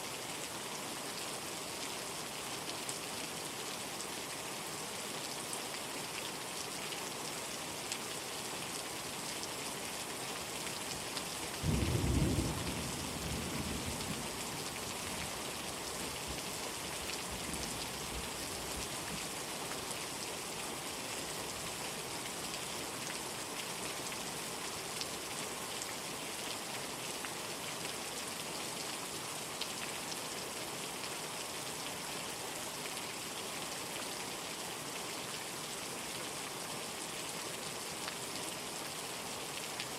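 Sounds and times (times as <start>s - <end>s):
heavy rain: 0.0s - 39.9s
thunder rumbling: 11.6s - 14.4s.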